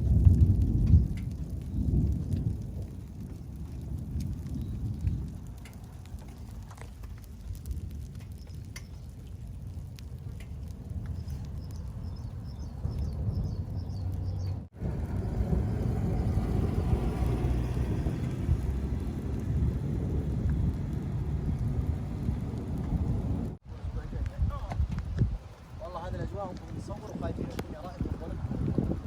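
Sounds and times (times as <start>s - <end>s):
rain falling: 0.0s - 23.6s
low rumble of thunder: 0.0s - 29.0s
bird chirping: 11.1s - 15.4s.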